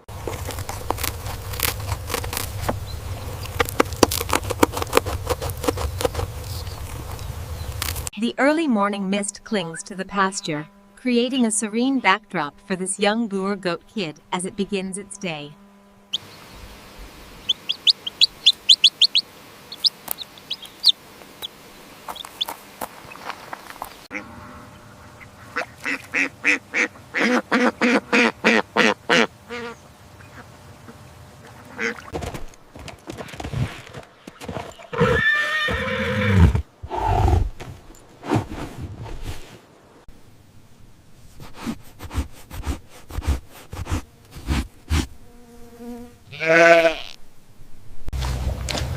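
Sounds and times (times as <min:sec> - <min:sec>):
birds chirping: 0:02.5 - 0:03.8, 0:05.2 - 0:08.1, 0:16.1 - 0:27.4
horse whinnying: 0:34.6 - 0:37.6.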